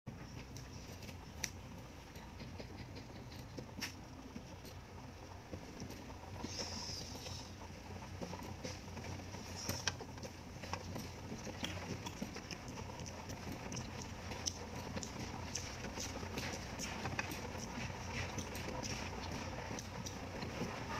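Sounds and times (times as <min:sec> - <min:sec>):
chewing: 0:08.2 - 0:20.9.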